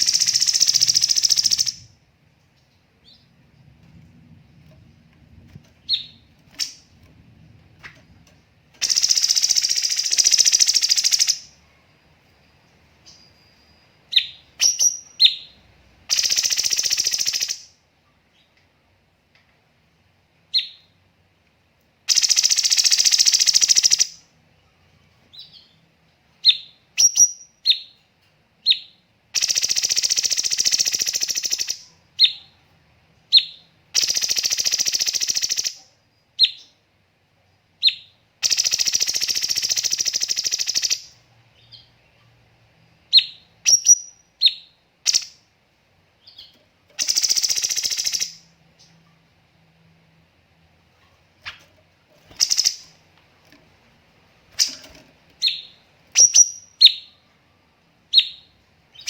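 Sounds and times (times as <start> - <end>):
songbird trilling: 0.0 - 1.8, 8.8 - 11.5, 46.2 - 48.4, 52.3 - 53.0, 54.5 - 57.2
sharp bird chirps: 0.0 - 1.9, 8.8 - 11.5, 13.0 - 17.7, 22.1 - 24.2, 28.6 - 32.4, 37.8 - 41.9, 43.1 - 45.4, 46.2 - 49.0, 52.3 - 53.0, 54.5 - 57.2, 58.1 - 59.0.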